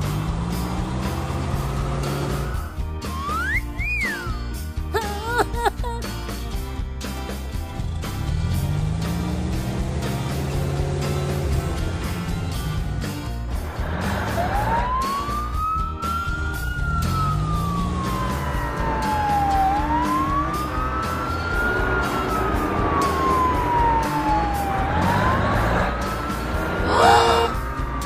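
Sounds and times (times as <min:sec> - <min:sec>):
background music: 0:00.0 - 0:28.0
emergency vehicle siren wailing: 0:02.0 - 0:04.3, 0:14.0 - 0:28.0.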